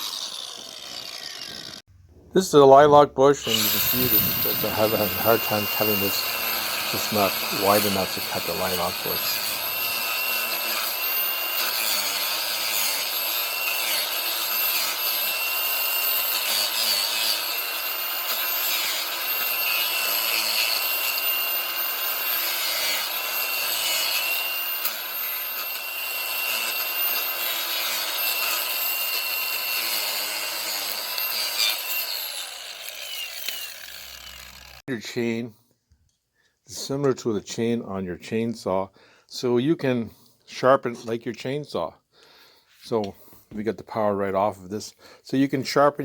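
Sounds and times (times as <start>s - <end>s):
angle grinder cutting wood: 0.0s - 1.9s, 2.7s - 34.8s.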